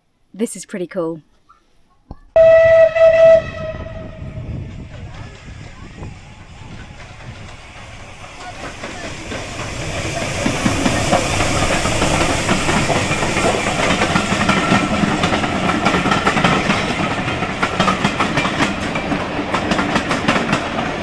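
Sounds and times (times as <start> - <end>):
steam train rushing past: 2.4 - 21.0
wheels clacking over rail joints: 12.0 - 21.0.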